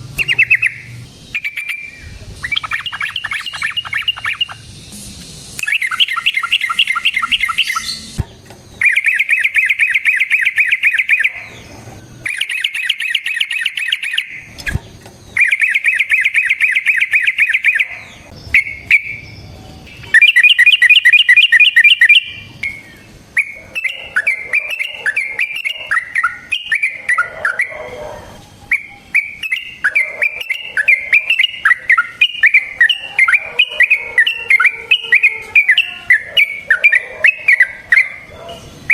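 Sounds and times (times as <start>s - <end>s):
bird chattering: 0.0s - 4.8s, 5.6s - 8.2s, 8.8s - 38.9s
bird singing rolling trills: 0.0s - 38.9s.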